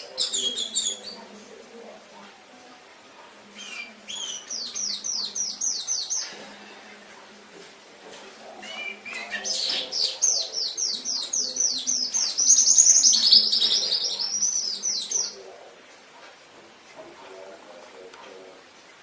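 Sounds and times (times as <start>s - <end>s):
canary singing: 0.0s - 1.8s, 2.4s - 7.3s, 8.4s - 15.6s.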